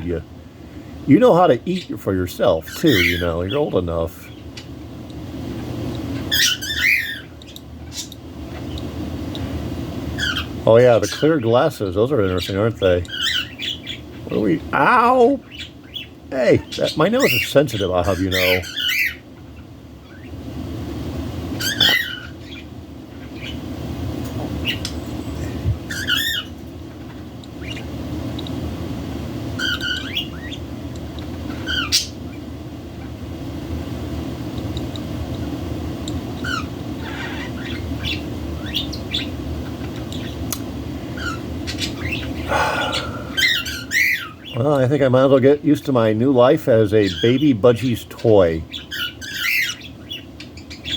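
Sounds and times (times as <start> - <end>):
low background noise: 0.0 - 50.9
budgerigars chirping and squawking: 1.2 - 4.4, 6.2 - 8.8, 10.2 - 20.3, 21.6 - 23.6, 24.6 - 27.9, 29.6 - 30.6, 31.3 - 32.4, 36.4 - 40.4, 41.0 - 50.9.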